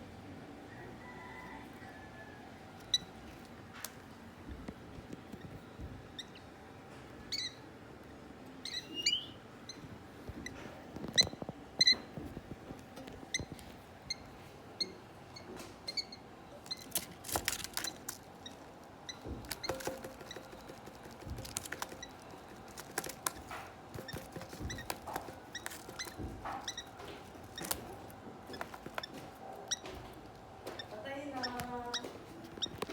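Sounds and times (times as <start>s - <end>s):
bird chicks peeping: 17.6s - 32.9s.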